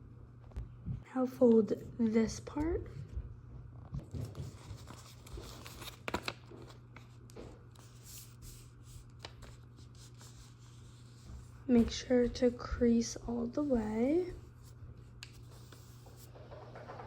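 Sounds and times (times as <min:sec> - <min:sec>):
paper being folded and creased: 0:04.1 - 0:11.5, 0:14.5 - 0:16.7.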